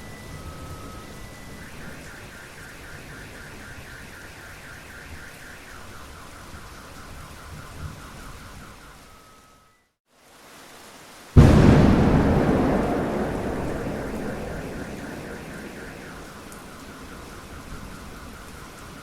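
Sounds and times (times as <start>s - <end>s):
steady rain: 10.2s - 19.0s.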